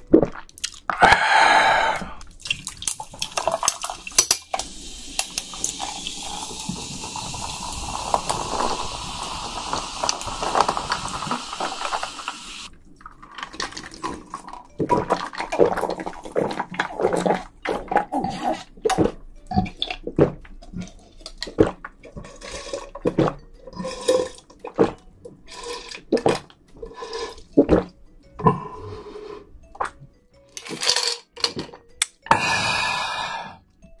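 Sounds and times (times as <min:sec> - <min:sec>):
shrimp being chewed: 0:00.0 - 0:01.2.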